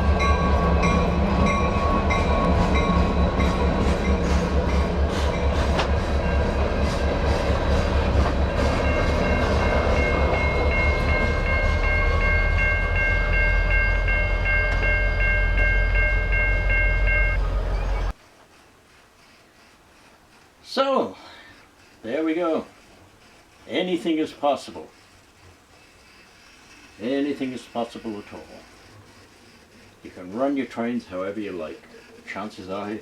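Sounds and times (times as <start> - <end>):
crossing warning bell: 0.0 - 18.1
locomotive engine rumble: 0.0 - 20.7
train wheels clicking: 0.0 - 33.0.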